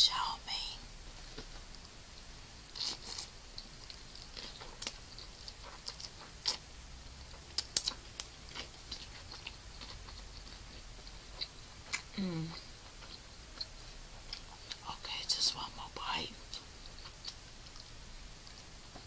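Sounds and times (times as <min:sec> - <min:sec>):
chewing noodles: 0:02.8 - 0:06.7, 0:07.3 - 0:14.8.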